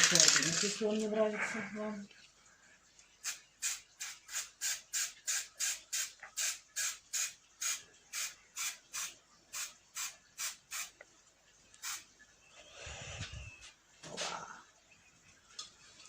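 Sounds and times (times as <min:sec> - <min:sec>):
spray can hissing: 0:03.2 - 0:11.0, 0:11.8 - 0:12.1.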